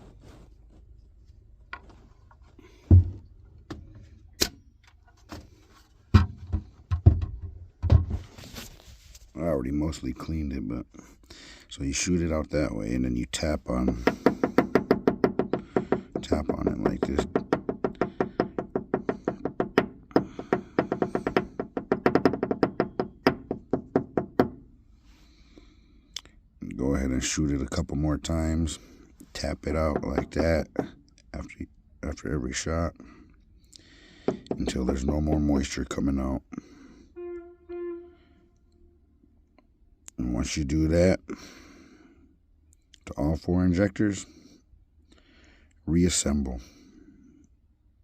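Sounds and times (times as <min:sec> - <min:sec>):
heavy knocks on injector: 0:02.9 - 0:03.3, 0:13.9 - 0:24.6, 0:34.3 - 0:35.5.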